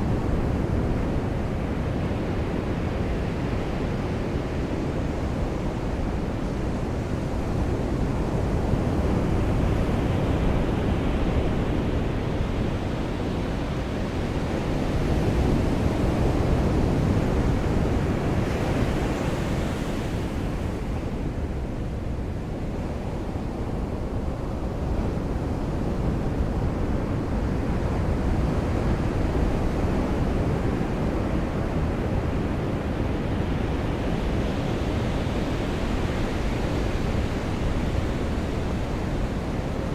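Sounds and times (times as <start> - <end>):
ocean surf washing onto beach: 30.0 - 39.9.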